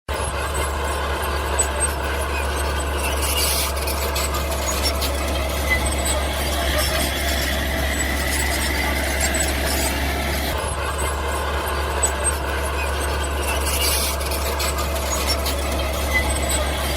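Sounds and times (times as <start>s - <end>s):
bulldozer engine drone: 0.1s - 16.9s.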